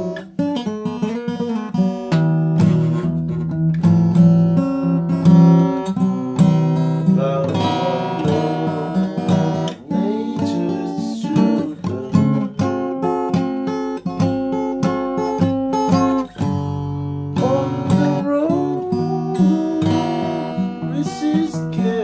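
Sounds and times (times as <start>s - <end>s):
acoustic guitar music: 0.0s - 22.0s.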